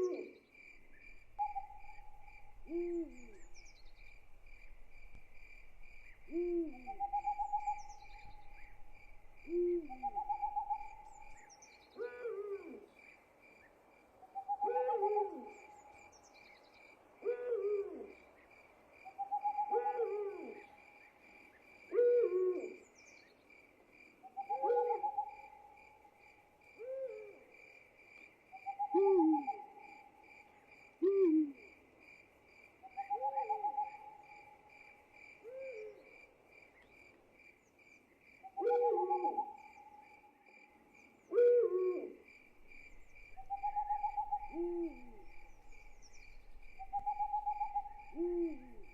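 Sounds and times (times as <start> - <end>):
insects trilling: 0.0 - 12.7, 38.6 - 48.9
night animal calls: 0.0 - 12.9, 14.3 - 16.2, 17.2 - 18.3, 19.0 - 21.1, 21.8 - 22.9, 24.2 - 26.1, 26.7 - 27.6, 28.5 - 31.8, 32.8 - 36.2, 38.4 - 40.3, 41.2 - 48.9.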